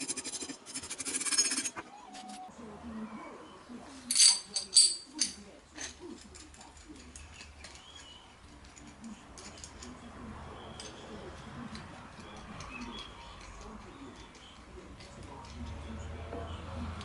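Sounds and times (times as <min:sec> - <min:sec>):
metal parts clinking: 0:04.1 - 0:10.1.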